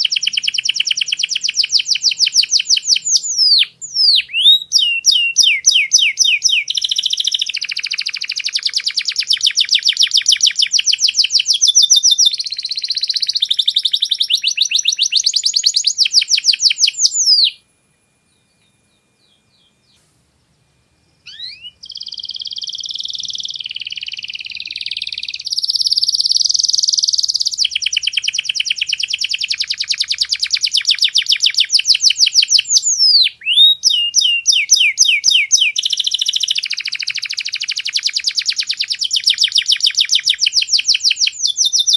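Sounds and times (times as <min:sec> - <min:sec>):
canary singing trills: 0:00.0 - 0:17.6, 0:18.2 - 0:20.0, 0:21.2 - 0:41.9.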